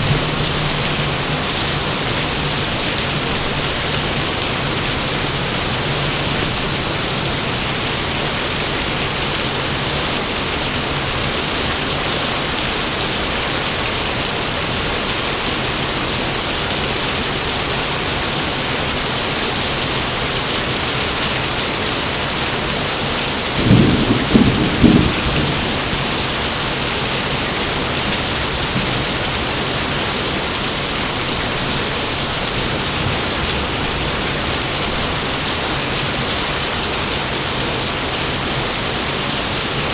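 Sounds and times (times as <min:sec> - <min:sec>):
thunder clap: 0:00.0 - 0:07.3, 0:23.6 - 0:29.5
heavy rain falling: 0:00.0 - 0:39.9.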